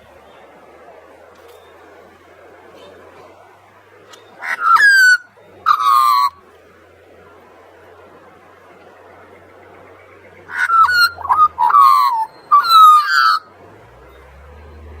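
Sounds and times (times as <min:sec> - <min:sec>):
faint background hiss: 0:00.0 - 0:15.0
magpie carolling: 0:04.3 - 0:06.5, 0:09.9 - 0:13.5
faint low rumble: 0:13.5 - 0:15.0.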